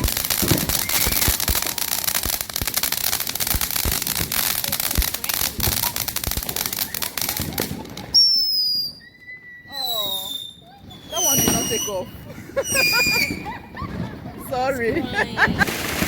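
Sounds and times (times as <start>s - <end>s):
loud high firework whistle: 0.0s - 2.3s, 8.1s - 13.6s
fireworks crackling: 0.0s - 9.0s, 9.8s - 16.0s.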